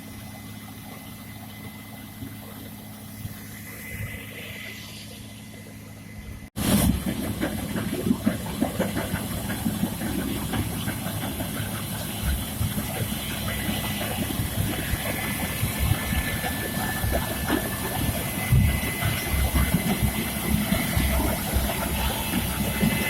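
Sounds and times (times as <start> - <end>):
farm machinery engine running: 0.0 - 23.0.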